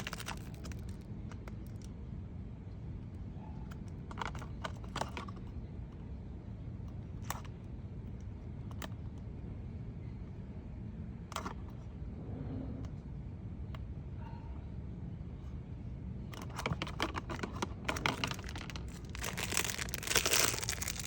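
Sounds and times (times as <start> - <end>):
steady low rumble: 5.4 - 21.0.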